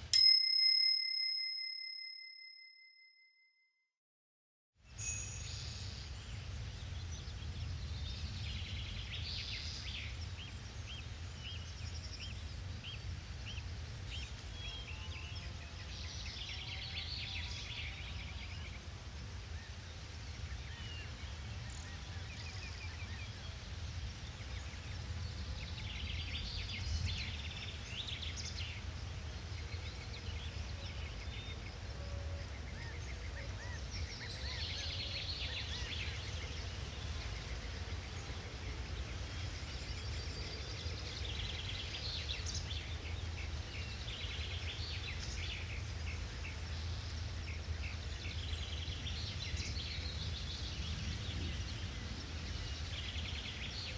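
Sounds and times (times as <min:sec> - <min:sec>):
birds chirping and trilling: 0:22.3 - 0:53.9.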